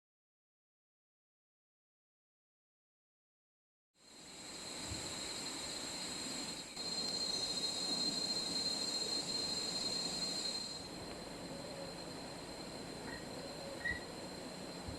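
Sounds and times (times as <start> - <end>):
steady high-pitched ringing: 4.0 - 14.9.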